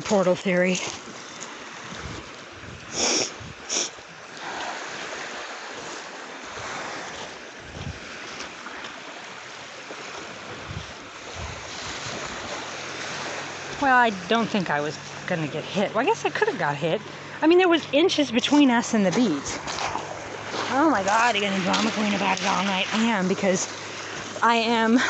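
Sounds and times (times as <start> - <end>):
small waves washing on beach: 0.0 - 25.0
wind noise on microphone: 1.8 - 4.0, 7.6 - 8.2, 10.5 - 13.8.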